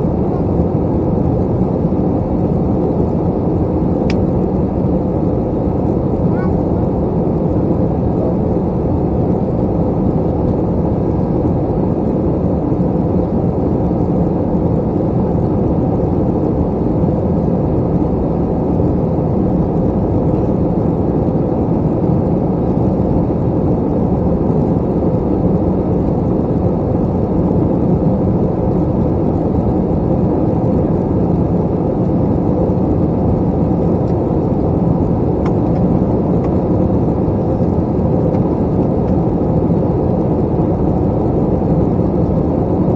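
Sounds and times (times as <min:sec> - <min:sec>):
jet engine cabin drone: 0:00.0 - 0:42.9.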